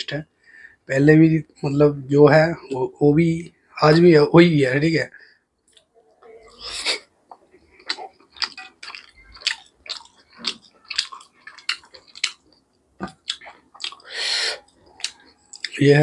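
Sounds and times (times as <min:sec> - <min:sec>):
wet chewing smacks: 0:06.6 - 0:15.8.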